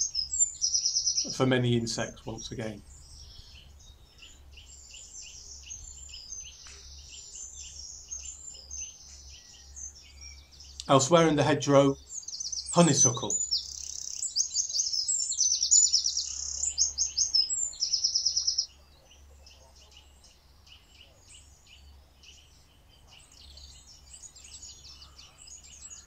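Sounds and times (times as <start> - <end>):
faint bird chirping: 0.0 - 26.0
songbird singing fast trills: 0.0 - 26.0.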